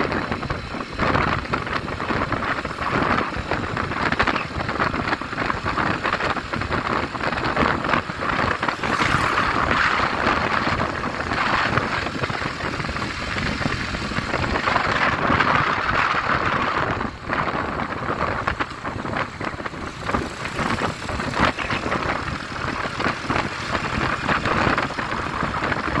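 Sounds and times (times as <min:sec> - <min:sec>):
strong sea wind: 0:00.0 - 0:26.0
heavy surf: 0:06.8 - 0:17.4.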